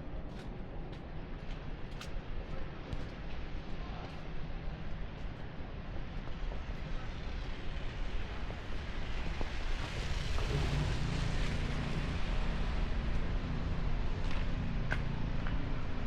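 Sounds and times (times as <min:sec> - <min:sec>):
street traffic rush: 0:00.0 - 0:16.0
vehicle engine hum: 0:06.3 - 0:16.0.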